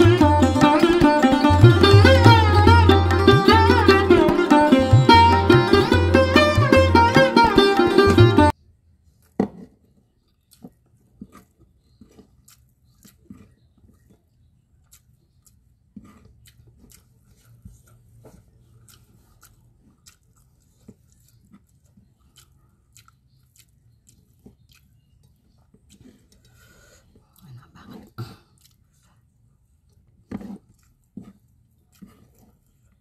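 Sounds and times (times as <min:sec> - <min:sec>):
person chewing: 0:10.4 - 0:33.0
small mouth clicks: 0:18.8 - 0:26.7, 0:28.2 - 0:28.9.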